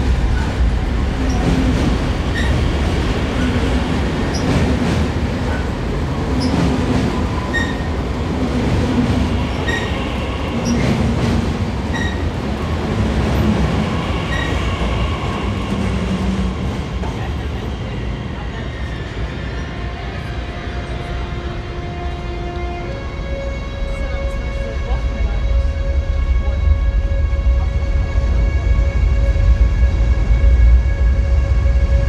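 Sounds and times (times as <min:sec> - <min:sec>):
faint train whine: 0:00.0 - 0:32.0
train wheels rumbling on rails: 0:00.0 - 0:32.0.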